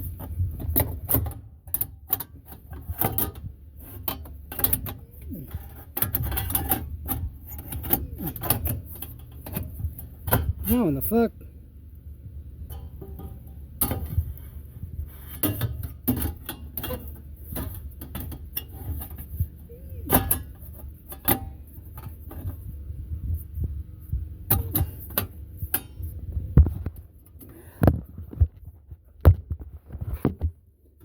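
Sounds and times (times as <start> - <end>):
air filter knocking and rattling: 0.0 - 10.9, 12.7 - 31.0
steady low hum: 0.0 - 31.0.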